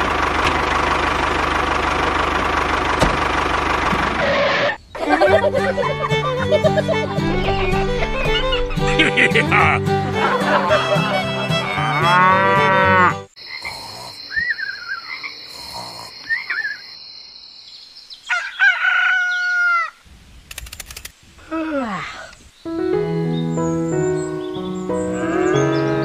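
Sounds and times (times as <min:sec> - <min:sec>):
background music: 0:05.1 - 0:13.3, 0:22.7 - 0:26.0
steady high tone: 0:07.0 - 0:11.3
farm animal calls: 0:10.5 - 0:16.9, 0:24.9 - 0:26.0.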